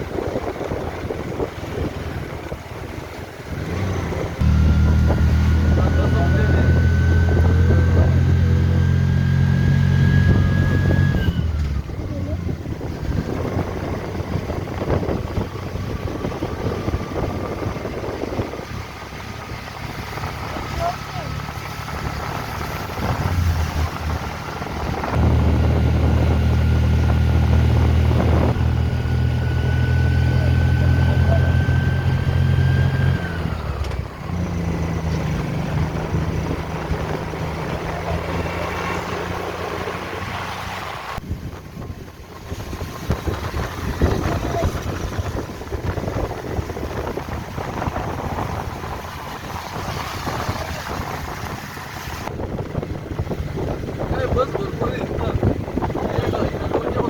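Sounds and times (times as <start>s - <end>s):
vehicle engine whining under load: 0.0s - 57.0s
wind and road noise: 0.0s - 57.0s.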